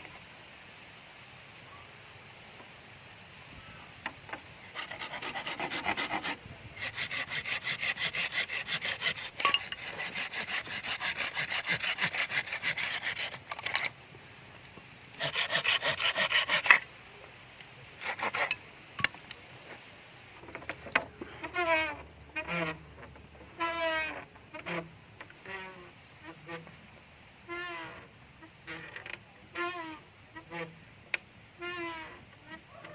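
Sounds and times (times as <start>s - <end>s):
hand saw sawing: 4.6s - 14.0s, 15.2s - 16.9s, 18.0s - 18.6s.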